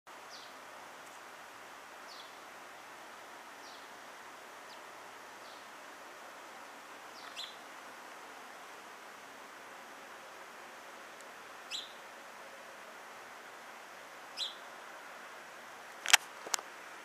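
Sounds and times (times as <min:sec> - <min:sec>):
steady background hiss: 0:00.1 - 0:17.0
small bird chirping: 0:00.3 - 0:01.2, 0:02.1 - 0:02.4, 0:03.6 - 0:03.9, 0:07.1 - 0:07.6, 0:11.6 - 0:12.0, 0:14.4 - 0:14.7.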